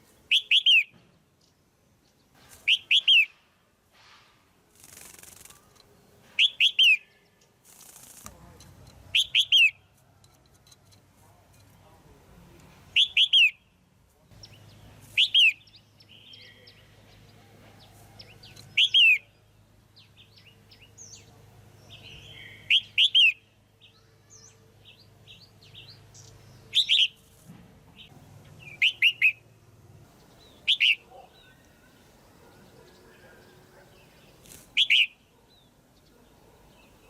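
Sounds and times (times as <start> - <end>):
bird calling loudly: 0.3 - 0.9, 2.6 - 3.4, 9.1 - 9.8, 18.7 - 19.3, 28.6 - 29.5, 30.5 - 34.2, 34.8 - 35.2.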